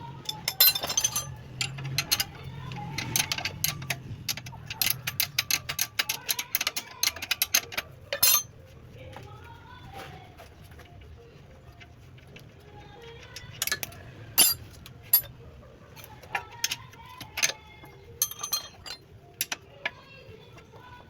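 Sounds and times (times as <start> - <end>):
metal tools clinking: 0.1 - 8.5, 13.2 - 15.4, 16.2 - 19.6.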